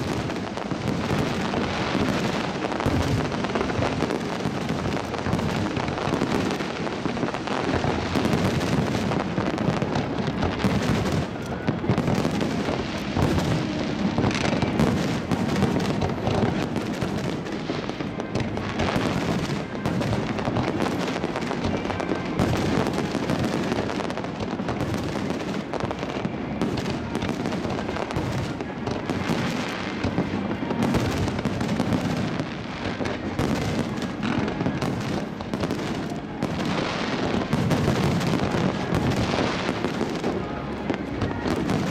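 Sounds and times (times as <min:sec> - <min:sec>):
fireworks bursting and crackling: 0:00.0 - 0:41.9.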